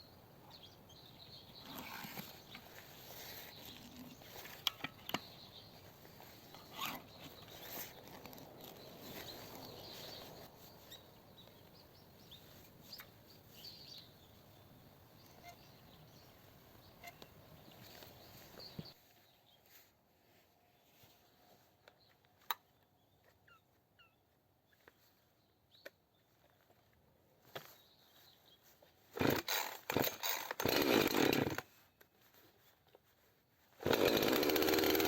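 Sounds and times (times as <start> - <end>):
faint outdoor background noise: 0.0 - 35.0.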